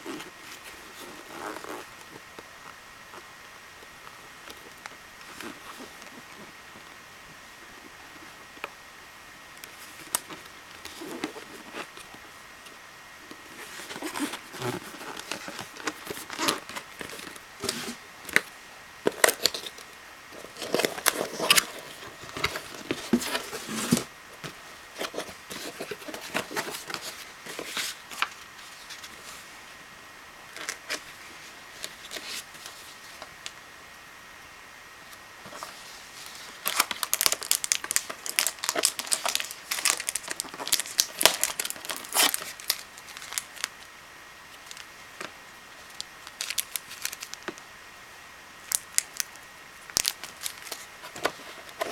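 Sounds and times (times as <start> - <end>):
crinkling plastic: 13.2 - 29.5, 35.4 - 43.9, 44.5 - 47.6, 48.6 - 51.9.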